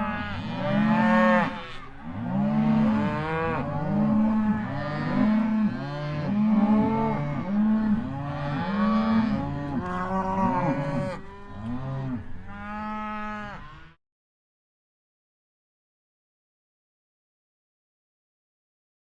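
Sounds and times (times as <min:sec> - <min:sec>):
cows mooing: 0:00.0 - 0:14.0.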